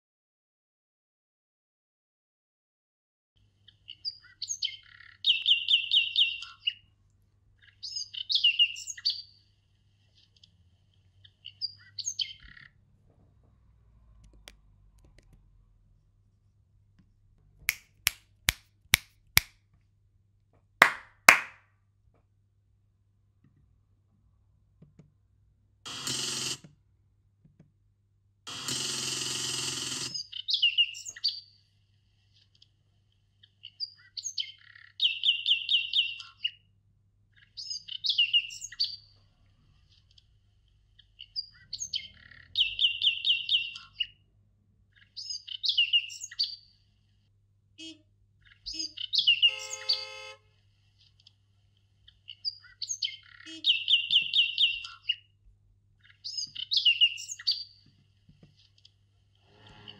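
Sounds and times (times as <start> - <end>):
songbird singing: 4.0 - 6.8, 7.6 - 9.3, 34.2 - 36.4, 41.4 - 44.1, 48.4 - 50.2, 52.3 - 55.2, 56.0 - 57.7.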